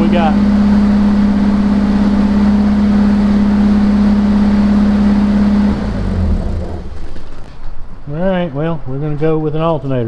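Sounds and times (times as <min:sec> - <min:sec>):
car engine running: 0:00.0 - 0:08.0
engine winding down: 0:00.0 - 0:08.0.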